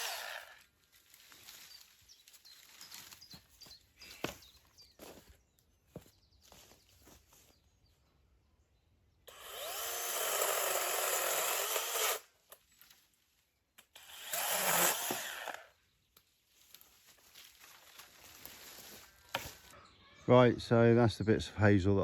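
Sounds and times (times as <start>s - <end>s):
power tool working wood: 0.0s - 0.6s, 9.3s - 12.2s, 14.0s - 15.7s.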